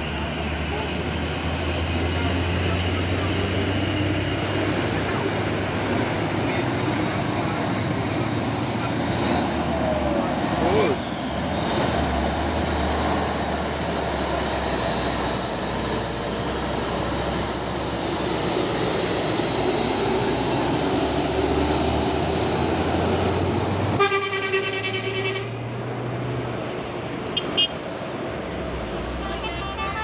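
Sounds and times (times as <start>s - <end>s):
truck horn blast: 23.9s - 25.6s, 29.2s - 30.0s.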